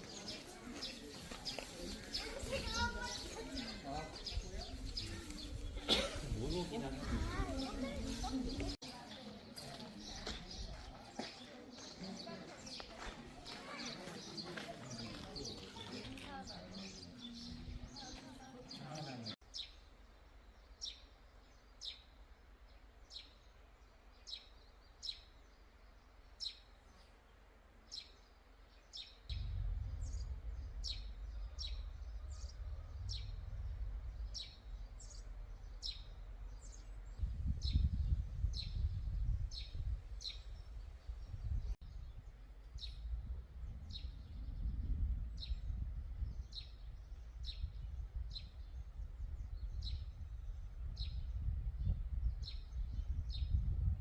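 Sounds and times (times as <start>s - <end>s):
songbird chirping: 0.0s - 54.0s
low rumble: 29.3s - 54.0s.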